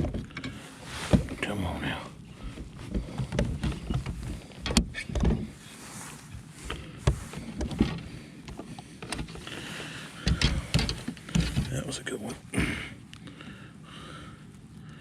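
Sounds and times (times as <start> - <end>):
knocks and thumps in a kayak: 1.1 - 1.4, 2.4 - 5.6, 10.2 - 11.8.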